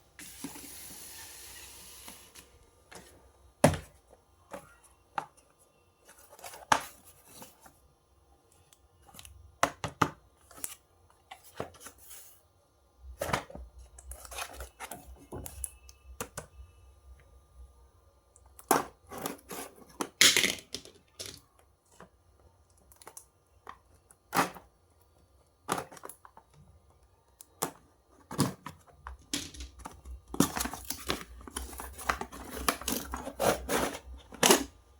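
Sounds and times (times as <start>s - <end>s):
packaging clicks and knocks: 25.6s - 26.6s, 27.4s - 34.8s
packaging rustling and tearing: 30.3s - 34.7s.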